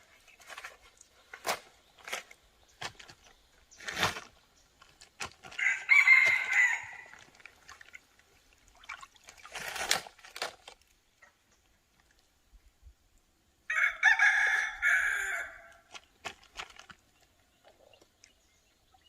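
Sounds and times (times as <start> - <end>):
rooster crowing: 5.6 - 7.1, 13.7 - 15.8.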